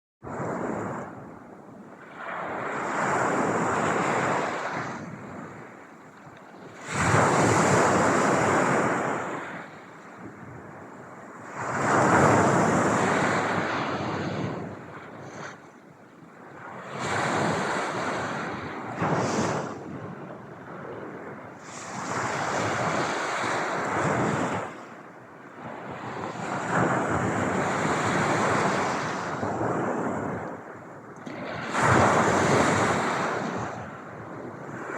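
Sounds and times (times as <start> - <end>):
ocean waves washing onto shore: 0.2 - 15.7, 16.4 - 34.9
ocean waves breaking: 6.6 - 10.0, 11.3 - 15.7, 31.2 - 34.9.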